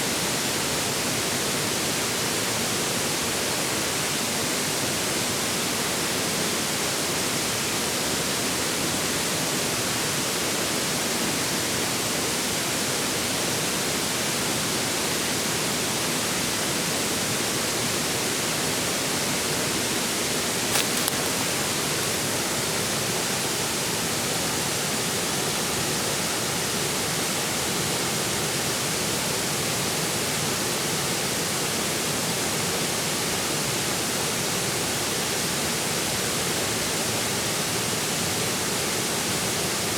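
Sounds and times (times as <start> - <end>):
stream flowing: 18.0 - 28.0.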